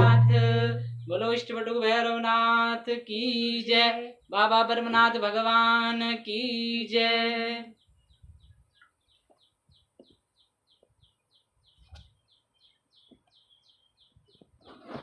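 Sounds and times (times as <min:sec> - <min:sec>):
bird chirping: 0:00.0 - 0:01.4, 0:07.8 - 0:14.6
faint low knocks: 0:00.0 - 0:01.4.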